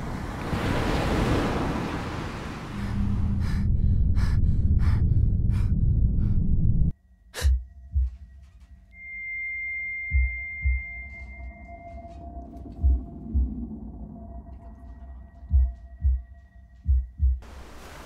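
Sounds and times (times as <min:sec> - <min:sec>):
rush like surf: 0:00.0 - 0:02.8, 0:17.4 - 0:18.0
low rumbling drone: 0:02.7 - 0:17.2.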